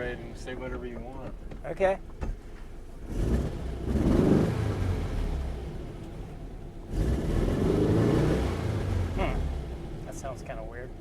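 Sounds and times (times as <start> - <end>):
car engine pulling away: 3.0 - 11.0.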